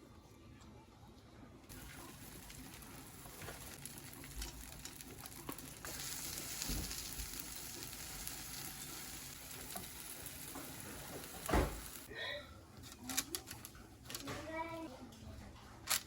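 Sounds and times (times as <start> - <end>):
food sizzling in a pan: 1.7 - 12.1.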